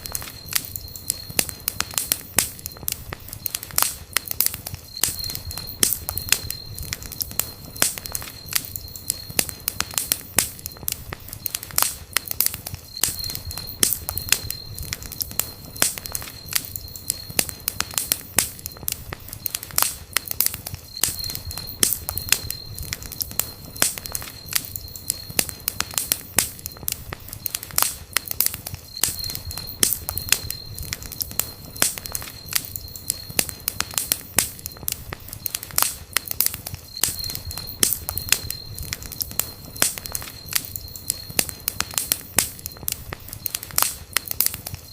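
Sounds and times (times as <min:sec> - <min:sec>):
campfire crackling and popping: 0:00.0 - 0:44.9
thin high whistle: 0:04.5 - 0:11.8, 0:12.5 - 0:19.7, 0:28.5 - 0:44.9.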